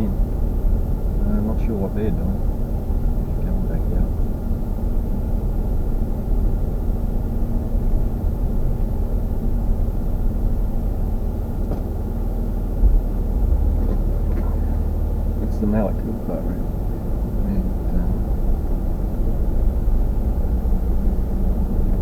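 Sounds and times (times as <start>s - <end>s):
vehicle engine idling: 0.0s - 22.0s
loud thump: 12.8s - 14.5s.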